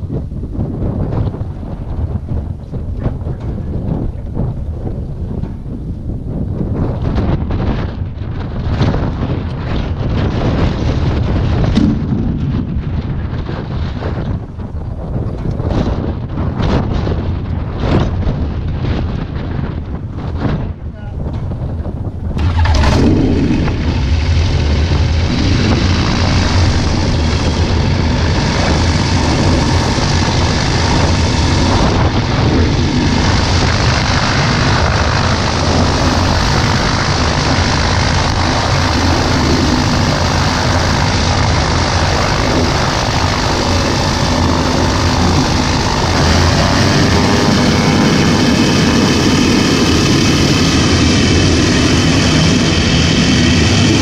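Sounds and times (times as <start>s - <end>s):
ultralight aircraft engine and propeller: 0.0s - 54.0s.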